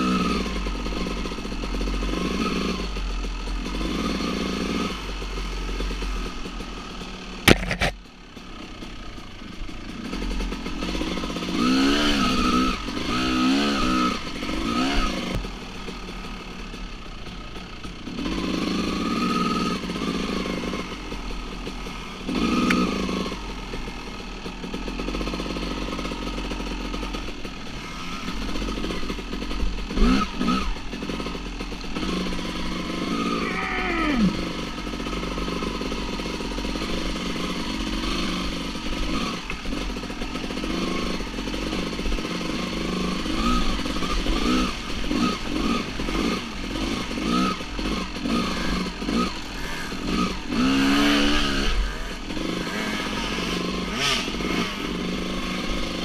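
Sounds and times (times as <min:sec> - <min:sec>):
dirt bike engines revving: 0:00.0 - 0:56.0
sharp knock: 0:07.4 - 0:08.0.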